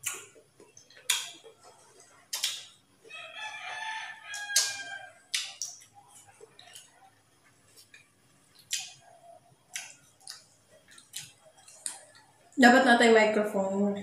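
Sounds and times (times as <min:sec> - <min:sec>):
crunchy mango being chewed: 0:00.0 - 0:12.4
rooster crowing: 0:03.1 - 0:05.3.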